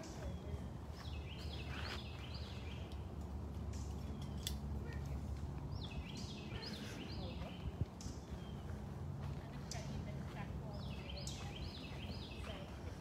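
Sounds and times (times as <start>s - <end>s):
songbird singing: 0.0s - 13.0s.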